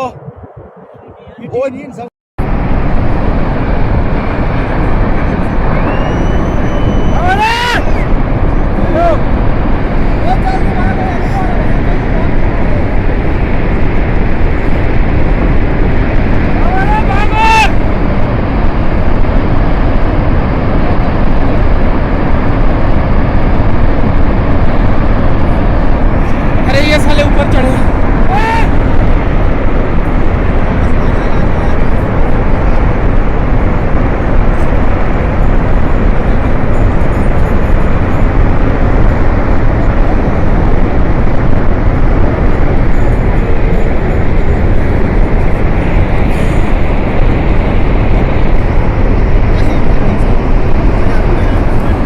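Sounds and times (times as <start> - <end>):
flood water rushing with low rumble: 0.0 - 52.0.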